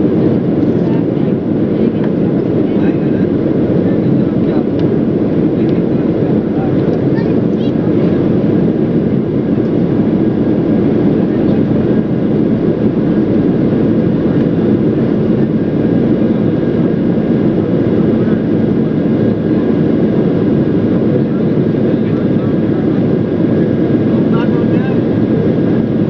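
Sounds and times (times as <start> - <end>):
jet engine rumble: 0.0 - 26.0.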